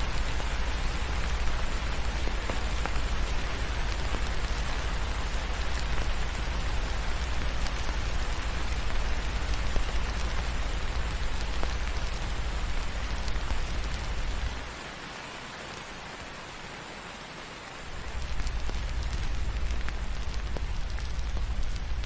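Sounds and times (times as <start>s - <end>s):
steady rain: 0.0s - 22.0s.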